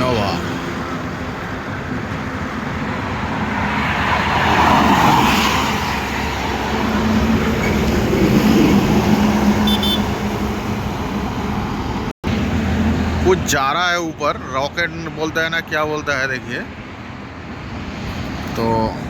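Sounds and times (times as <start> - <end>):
vehicle engine hum: 0.0 - 16.1
vehicle passing close by: 2.4 - 13.2.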